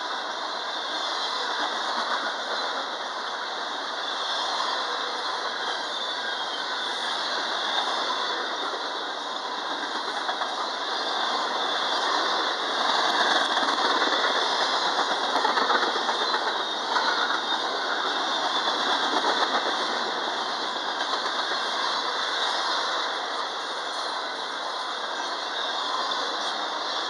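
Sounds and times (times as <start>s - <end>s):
freight train wheels rolling on rails: 0.0s - 27.0s.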